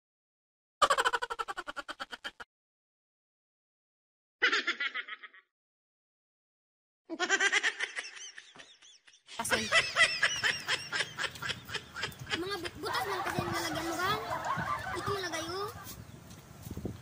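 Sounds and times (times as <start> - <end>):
person laughing: 0.8 - 2.5, 7.1 - 16.0.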